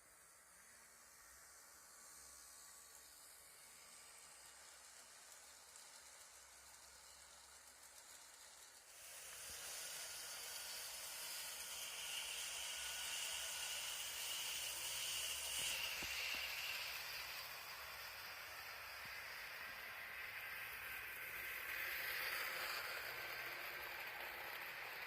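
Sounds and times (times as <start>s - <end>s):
wheels hissing on rails: 0.0s - 25.0s
electric motor whine: 9.0s - 25.0s.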